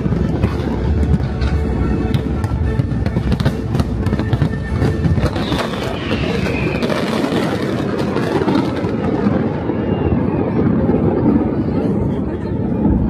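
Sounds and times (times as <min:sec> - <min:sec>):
music playing: 0:00.0 - 0:07.8
deep fireworks booms: 0:00.0 - 0:13.0
fireworks bangs and crackles: 0:00.0 - 0:13.0.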